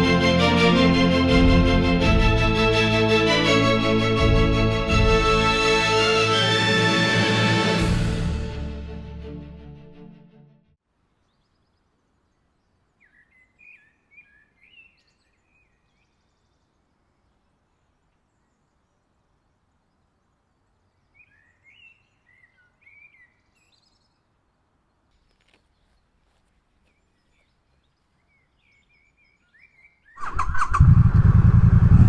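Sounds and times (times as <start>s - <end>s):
background music: 0.0s - 10.8s.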